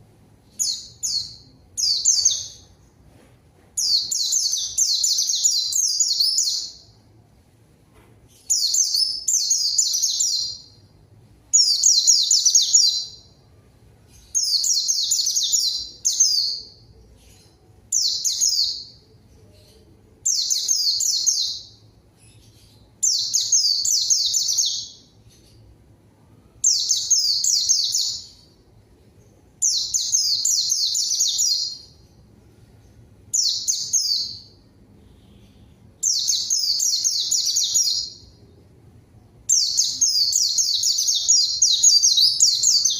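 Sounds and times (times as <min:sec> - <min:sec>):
bird twittering song: 0:00.4 - 0:03.0, 0:03.8 - 0:07.0, 0:08.3 - 0:10.8, 0:14.1 - 0:25.7, 0:26.6 - 0:28.6, 0:29.2 - 0:32.1, 0:32.8 - 0:34.6, 0:35.2 - 0:38.6, 0:39.4 - 0:42.9.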